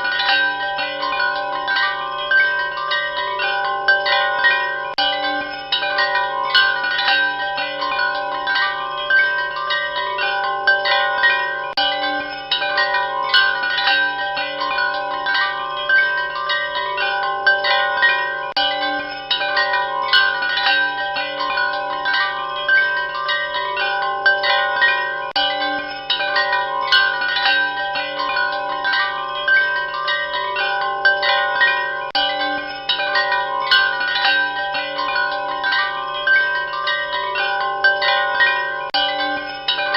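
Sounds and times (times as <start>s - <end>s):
wind chimes ringing: 0.0s - 39.9s.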